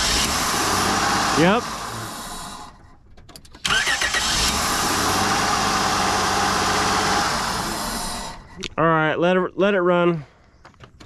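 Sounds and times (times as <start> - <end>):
engine cranking with rising whine: 0.0 - 3.0, 3.6 - 8.6
car engine idling: 0.0 - 8.8.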